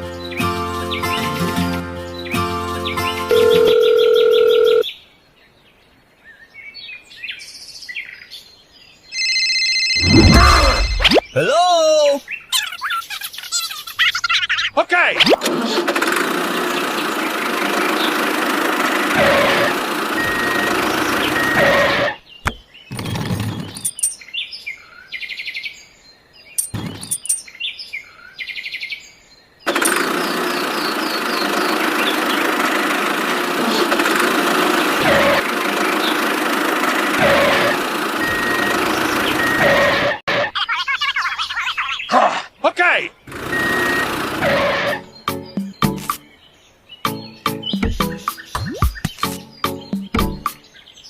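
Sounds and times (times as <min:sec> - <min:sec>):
birds chirping: 0:00.0 - 0:09.4, 0:10.0 - 0:15.9, 0:16.5 - 0:51.0
engine running: 0:15.3 - 0:22.2, 0:29.7 - 0:40.2, 0:43.3 - 0:46.1.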